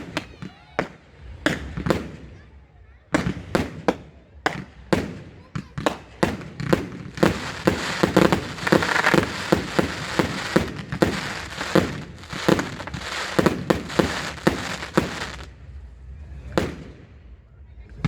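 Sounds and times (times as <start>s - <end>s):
fireworks bangs: 0.0s - 2.5s, 3.1s - 18.0s
dense crackling: 6.3s - 15.6s.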